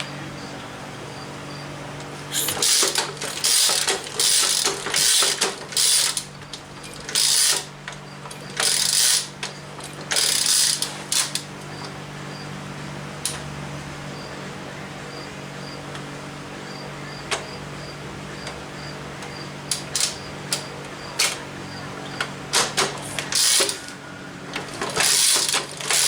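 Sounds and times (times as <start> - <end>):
ratchet wrench clicking: 2.3 - 6.3, 7.0 - 7.7, 8.6 - 9.3, 10.1 - 11.4, 23.3 - 23.9, 25.0 - 26.0.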